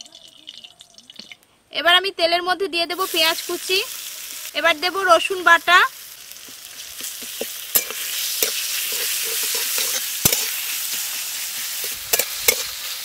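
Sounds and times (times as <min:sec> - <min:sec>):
onions sizzling in hot oil: 0:02.9 - 0:13.0
metal spatula scraping pan: 0:07.0 - 0:12.9.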